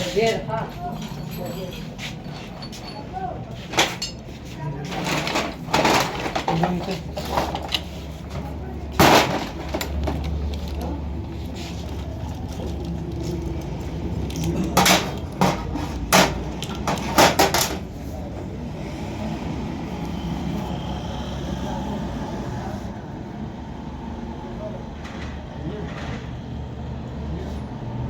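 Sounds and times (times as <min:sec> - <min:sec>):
metal knocks and clanks: 0:03.7 - 0:10.4, 0:14.3 - 0:17.9.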